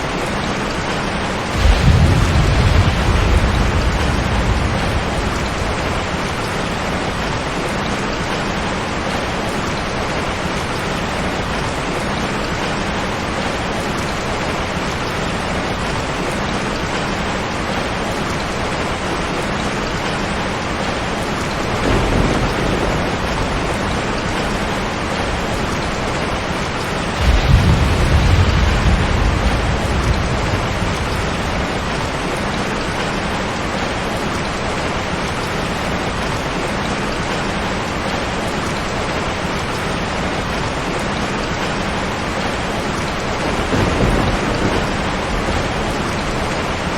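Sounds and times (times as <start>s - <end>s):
heavy rain falling: 0.0s - 46.9s
thunder rumbling: 1.2s - 9.1s, 20.3s - 34.1s, 42.2s - 46.9s.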